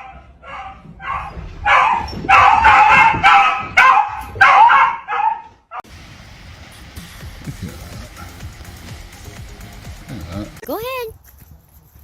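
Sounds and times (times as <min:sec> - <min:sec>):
dog yipping barks: 0:00.0 - 0:05.8.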